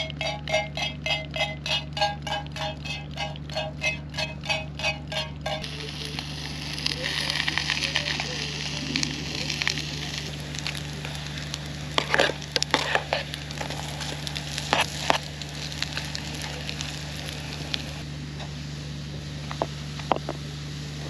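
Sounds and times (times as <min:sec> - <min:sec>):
knife blade scraping a pan: 0:00.0 - 0:05.7, 0:12.0 - 0:13.3
low generator hum: 0:00.0 - 0:21.0
patties sizzling in oil: 0:00.0 - 0:21.0.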